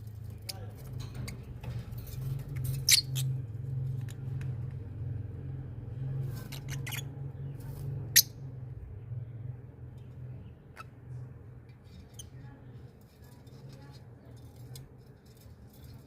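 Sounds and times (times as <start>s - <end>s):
small birds chirping: 0.3s - 3.9s, 6.1s - 14.9s.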